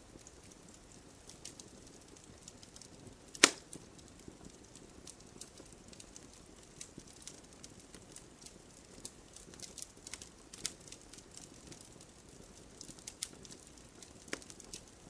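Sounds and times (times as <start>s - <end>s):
fire crackling: 0.0s - 15.0s
loud pop of fire: 3.3s - 3.8s.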